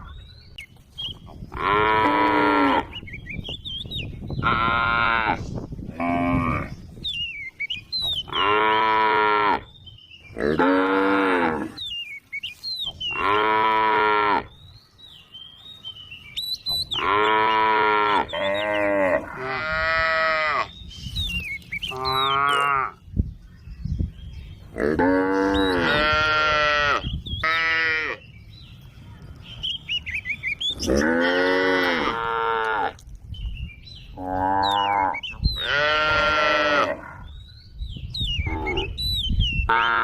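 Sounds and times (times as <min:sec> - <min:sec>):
cow mooing: 0:22.0 - 0:23.0, 0:24.8 - 0:28.2, 0:30.8 - 0:33.0, 0:34.2 - 0:37.2.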